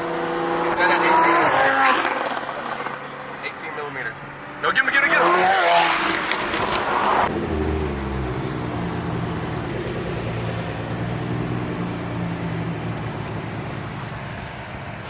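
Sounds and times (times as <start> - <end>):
car engine running at low revs: 7.3 - 15.0.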